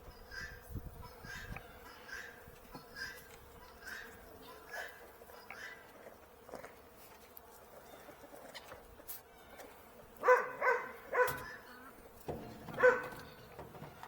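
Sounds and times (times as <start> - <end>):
animal high-pitched calls: 0.2 - 6.0.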